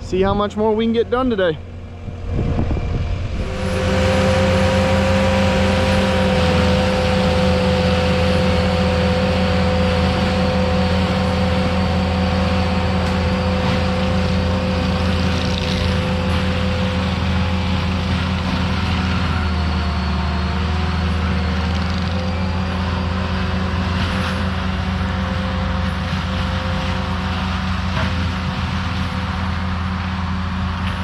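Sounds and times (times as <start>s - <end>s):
diesel engine running: 0.0s - 31.0s
steady whine: 0.0s - 31.0s.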